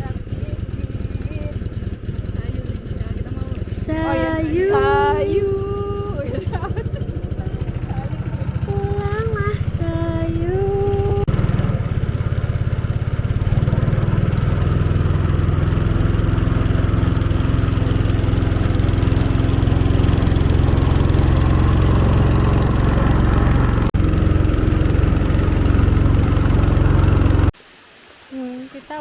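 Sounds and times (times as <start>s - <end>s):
small engine running: 0.0s - 27.6s.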